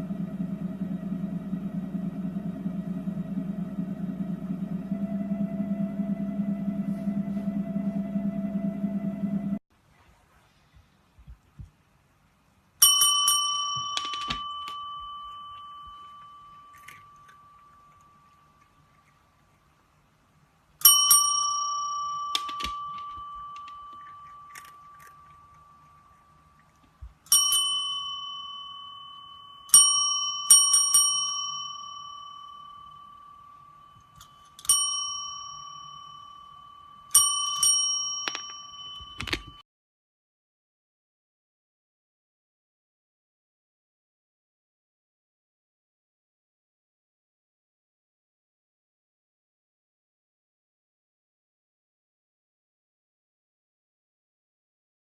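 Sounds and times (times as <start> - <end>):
small metal bell ringing: 12.8 - 18.5, 20.8 - 26.6, 27.3 - 39.6.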